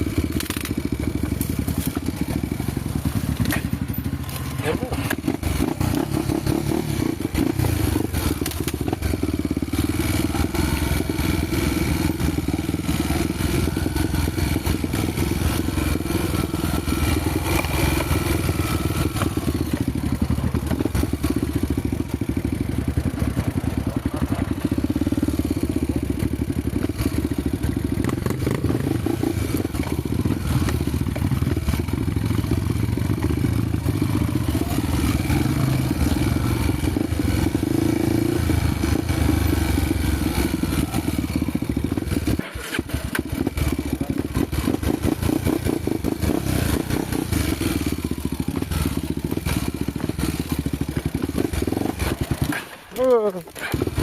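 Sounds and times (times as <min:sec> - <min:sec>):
motorcycle engine running: 0:00.0 - 0:54.0
bike clattering over rough ground: 0:00.3 - 0:05.3.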